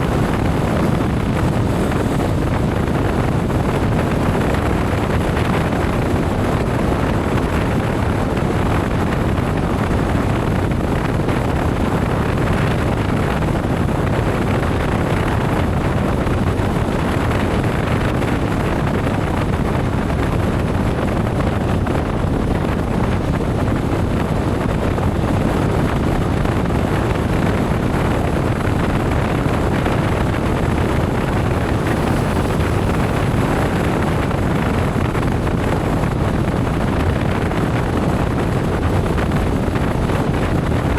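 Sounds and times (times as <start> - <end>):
motorcycle riding at speed: 0.0 - 40.9
wind on microphone: 0.0 - 40.9.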